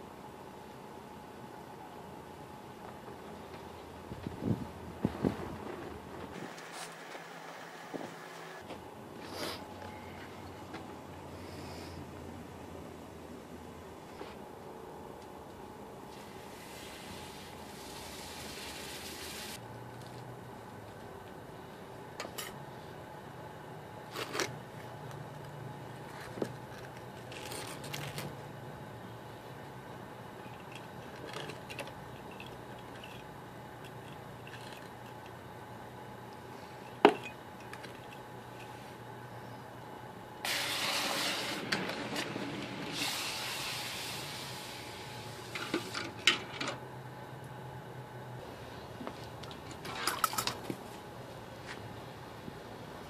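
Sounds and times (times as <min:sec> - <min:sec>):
steady low hum: 0:00.0 - 0:53.0
hot metal hissing in water: 0:16.5 - 0:19.6, 0:40.5 - 0:41.7, 0:42.9 - 0:45.4.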